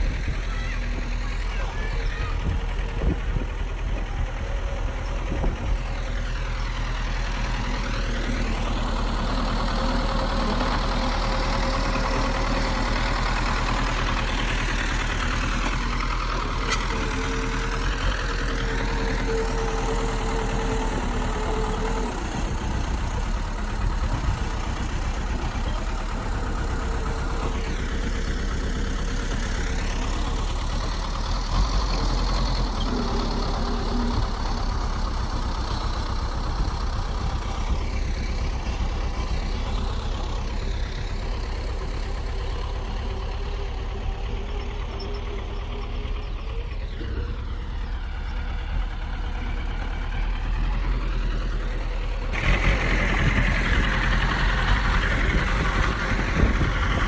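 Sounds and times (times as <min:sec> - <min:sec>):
bulldozer diesel engine rumbling: 0:00.0 - 0:57.0.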